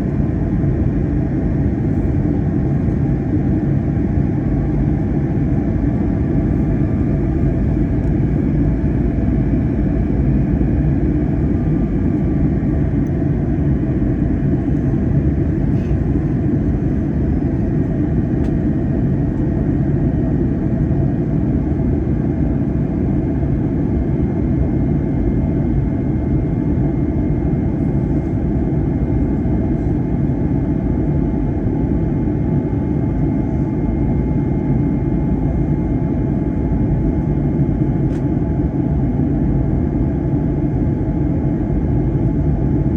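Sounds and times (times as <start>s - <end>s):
aircraft engines droning: 0.0s - 42.9s.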